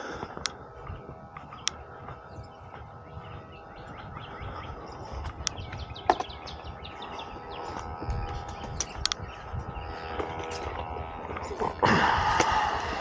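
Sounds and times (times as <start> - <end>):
small birds chirping: 0.0 - 13.0
steady hum: 0.0 - 13.0
sharp clicks: 1.4 - 1.8, 8.2 - 9.3.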